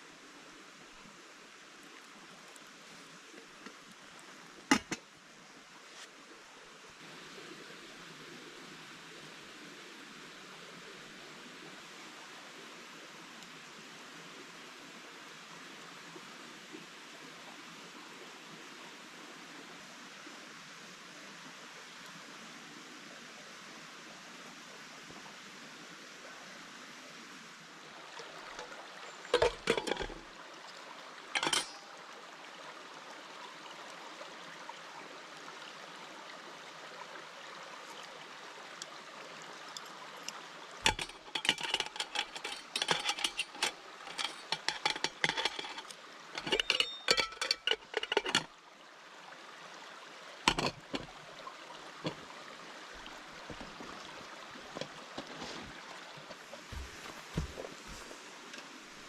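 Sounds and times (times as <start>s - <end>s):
sharp clinks and knocks: 29.3s - 30.2s, 31.4s - 32.0s, 40.8s - 48.5s, 50.5s - 51.1s
background hiss: 50.4s - 59.0s.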